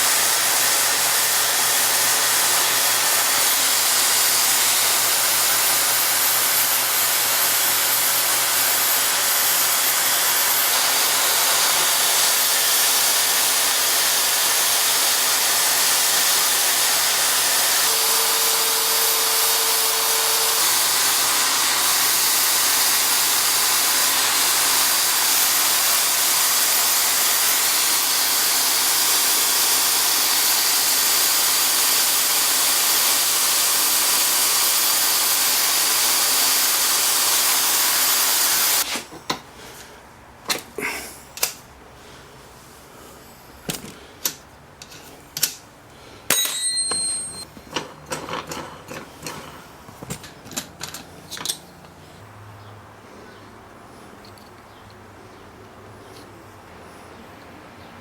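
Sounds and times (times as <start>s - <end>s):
mini lathe motor whirring: 0.0s - 38.9s.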